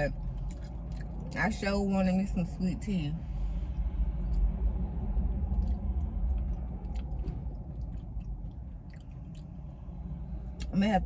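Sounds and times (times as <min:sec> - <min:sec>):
steady low hum: 0:00.0 - 0:11.0
person chewing: 0:00.2 - 0:01.4, 0:05.2 - 0:09.9
wet mouth clicks and smacks: 0:05.4 - 0:09.7.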